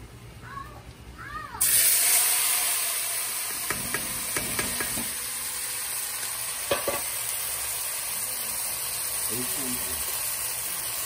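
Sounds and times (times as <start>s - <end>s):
vegetables sizzling in hot oil: 1.6s - 11.0s
metal knocks against pot: 3.5s - 5.1s, 6.7s - 7.1s.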